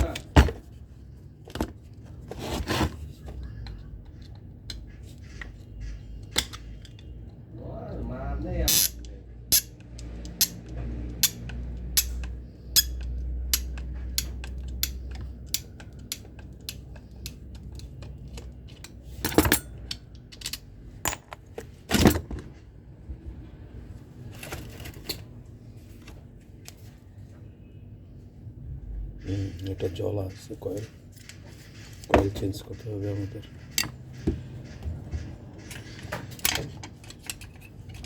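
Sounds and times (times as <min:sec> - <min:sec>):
metal tools clicking and knocking: 0:06.2 - 0:07.4, 0:08.6 - 0:22.5, 0:32.0 - 0:38.0.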